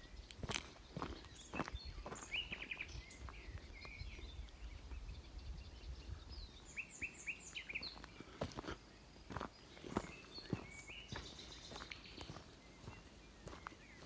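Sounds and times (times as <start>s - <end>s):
wind rumble on microphone: 0.0s - 6.8s
small songbirds chirping: 0.0s - 14.0s.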